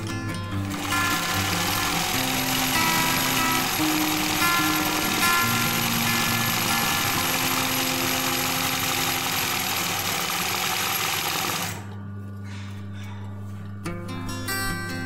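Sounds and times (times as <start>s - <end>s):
background music: 0.0s - 15.0s
sewing machine running: 0.6s - 12.0s.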